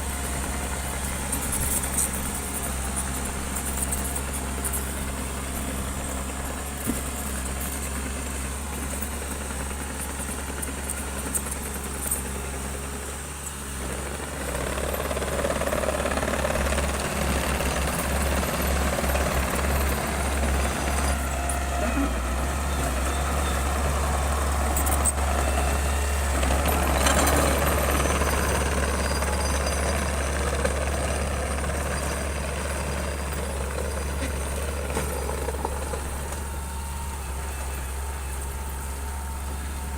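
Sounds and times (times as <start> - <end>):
heavy diesel machine running: 0.0 - 39.9.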